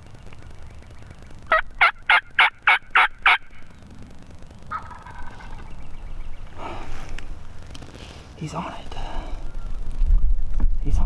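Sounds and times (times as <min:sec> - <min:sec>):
drawn-out turkey call: 0:00.5 - 0:03.8, 0:04.6 - 0:08.1
wild turkey yelping: 0:01.0 - 0:03.8, 0:04.7 - 0:07.4.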